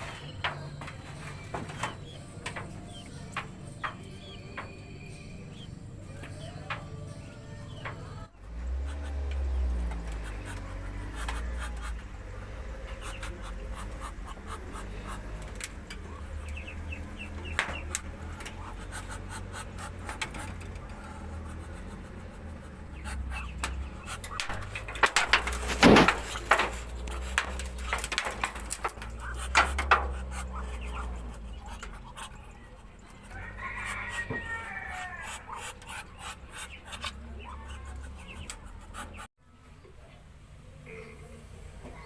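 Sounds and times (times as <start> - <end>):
ducks calling: 0.0 - 39.3
clicks and knocks: 23.6 - 30.3.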